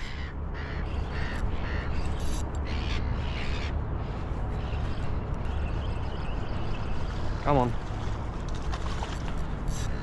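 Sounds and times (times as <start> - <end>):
bird harsh calls: 0.0 - 8.0
steady low rumble: 0.0 - 10.0.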